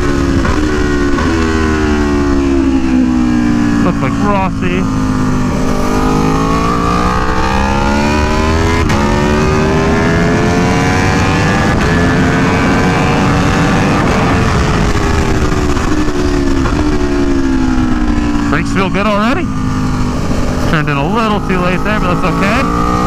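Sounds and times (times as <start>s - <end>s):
motorcycle engine accelerating: 0.0s - 23.0s
wind rush: 4.8s - 18.6s.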